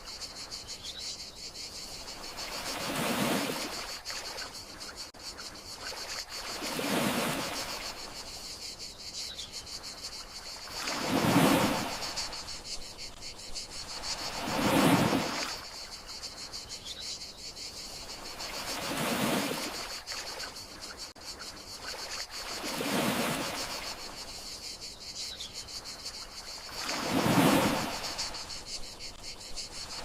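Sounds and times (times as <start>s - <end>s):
crickets chirping: 0.0s - 30.0s
gentle sea waves washing ashore: 1.8s - 5.0s, 5.7s - 8.6s, 10.2s - 16.3s, 18.0s - 21.2s, 21.8s - 24.5s, 25.9s - 30.0s.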